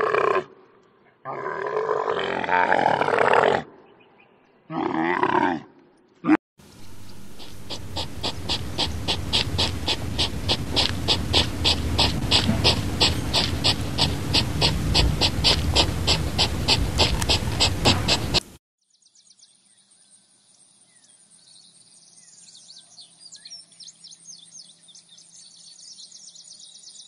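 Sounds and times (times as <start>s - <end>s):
steady ticking: 6.7s - 18.6s
camel grumbling: 6.8s - 18.5s.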